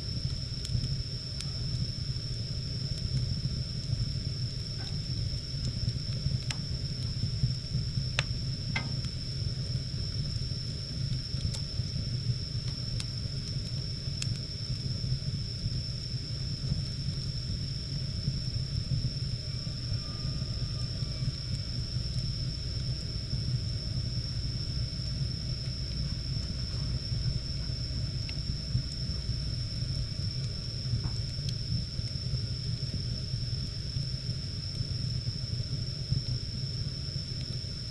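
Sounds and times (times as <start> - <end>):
high-pitched whine: 0.0 - 13.3, 15.8 - 32.5
fire crackles: 0.0 - 37.9
wood fire rumbling: 0.0 - 37.9.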